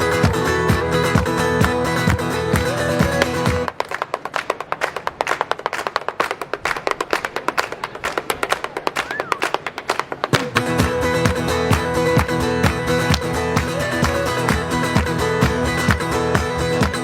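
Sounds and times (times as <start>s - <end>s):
acoustic guitar strumming: 0.0s - 3.7s, 10.4s - 17.0s.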